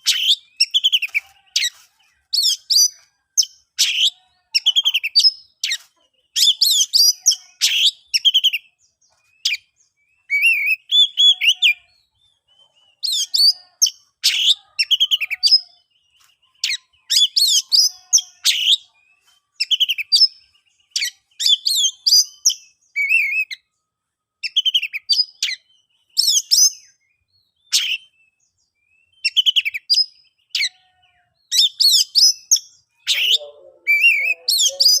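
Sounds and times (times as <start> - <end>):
bird singing whistled phrases: 9.4 - 11.9, 16.5 - 23.6, 24.4 - 30.7, 31.5 - 35.0.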